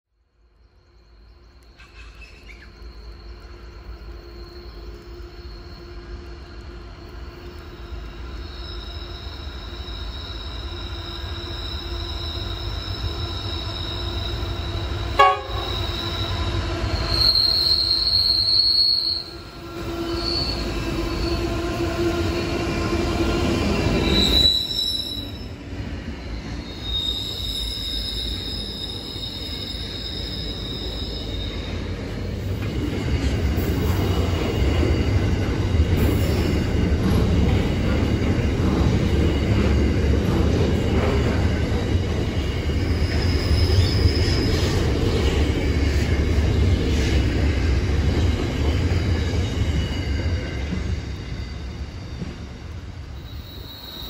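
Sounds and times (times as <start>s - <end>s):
high wheel squeal: 7.2s - 32.2s, 42.4s - 45.2s, 53.2s - 54.0s.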